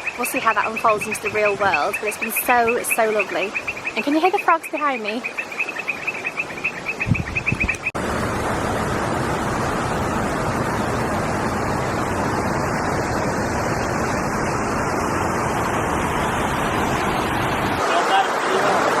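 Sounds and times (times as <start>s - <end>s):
frogs chirping: 0.0s - 7.9s
waterfall rushing: 8.0s - 19.0s.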